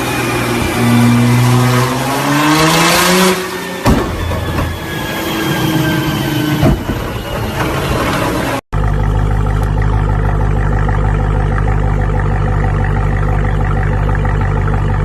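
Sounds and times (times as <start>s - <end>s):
car engine revving: 0.0s - 15.0s
exhaust cracks: 6.6s - 15.0s.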